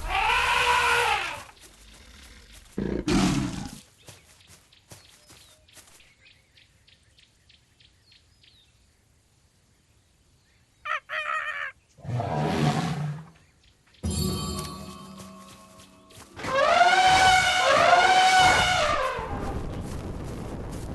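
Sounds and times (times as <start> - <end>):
rough animal call: 0.0 - 3.8, 16.3 - 19.6.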